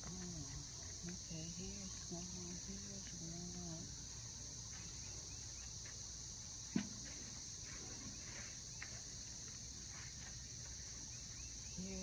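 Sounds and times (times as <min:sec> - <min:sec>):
high-pitched insect chorus: 0:00.0 - 0:12.0
faint scratchy rustles: 0:07.0 - 0:11.5.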